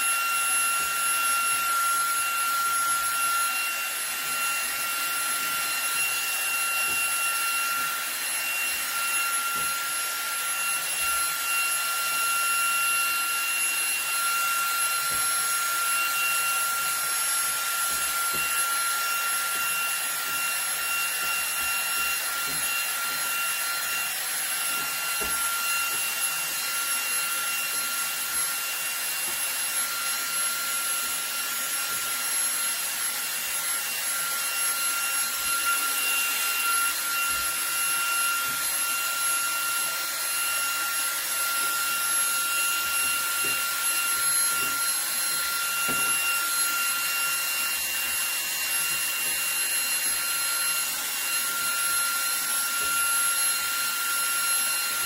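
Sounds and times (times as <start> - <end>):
stick vacuum running: 0.0 - 55.0.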